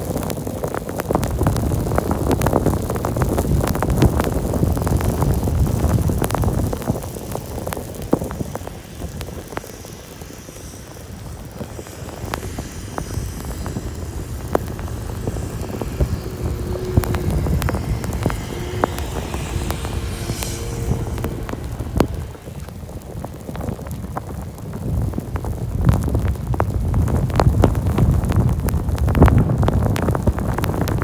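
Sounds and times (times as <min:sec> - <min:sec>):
car engine and road noise: 0:00.0 - 0:31.0
sharp ticks: 0:07.8 - 0:22.8.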